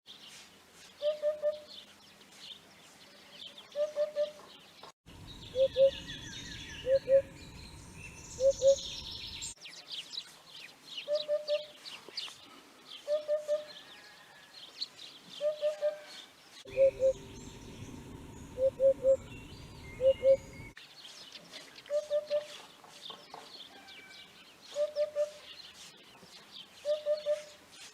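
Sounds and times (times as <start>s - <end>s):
small birds chirping: 0.1s - 27.9s
hoopoe singing: 16.7s - 20.6s.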